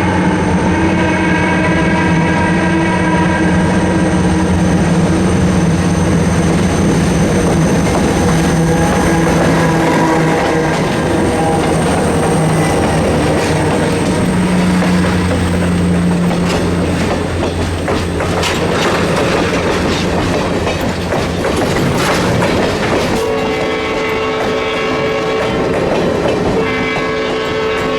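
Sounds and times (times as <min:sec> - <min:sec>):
steam whistle: 0:00.0 - 0:17.4, 0:23.2 - 0:25.7, 0:26.6 - 0:27.9
steam train rumble: 0:00.0 - 0:27.9
wheels clicking over rail joints: 0:06.5 - 0:27.9.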